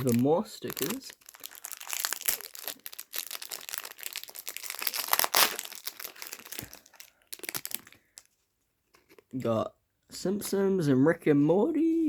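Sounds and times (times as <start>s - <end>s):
packaging crinkling and crackling: 0.0s - 8.3s.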